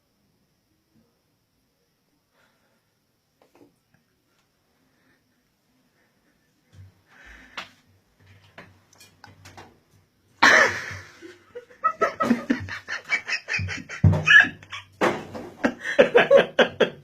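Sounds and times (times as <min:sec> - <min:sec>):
people laughing: 0:10.4 - 0:15.0, 0:15.6 - 0:17.0.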